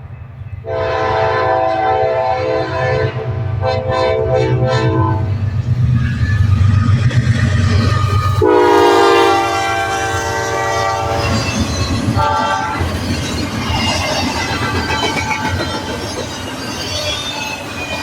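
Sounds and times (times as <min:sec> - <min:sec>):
diesel locomotive rumble: 0:00.0 - 0:17.7
locomotive air horn blasts: 0:00.6 - 0:05.3, 0:08.4 - 0:11.2, 0:12.2 - 0:12.8
train wheels clattering on rails: 0:05.3 - 0:18.0.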